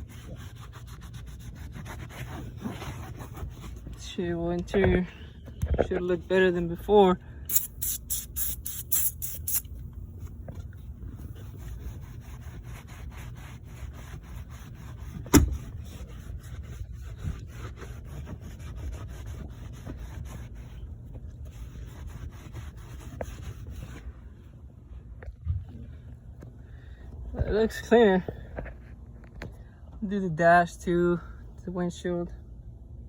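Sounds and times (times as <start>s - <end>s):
cloth wiping and scrubbing: 0.0s - 4.0s, 10.2s - 25.0s
spray bottle squirting: 7.5s - 9.7s.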